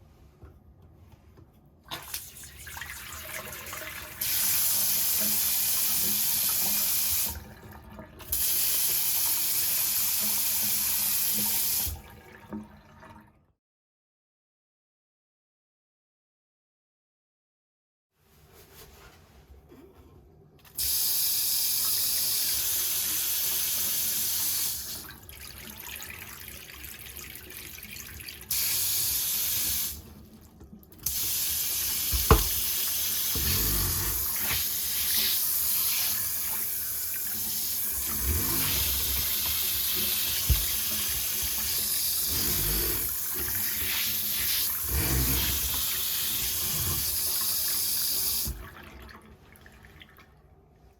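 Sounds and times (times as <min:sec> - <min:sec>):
faucet water splashing into basin: 0:30.9 - 0:49.2
sharp knock: 0:32.1 - 0:32.6.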